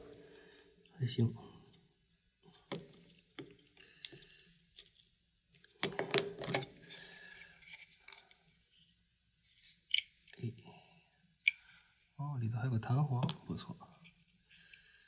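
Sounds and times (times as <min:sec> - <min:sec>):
parts scraping rustle: 0:06.8 - 0:08.3.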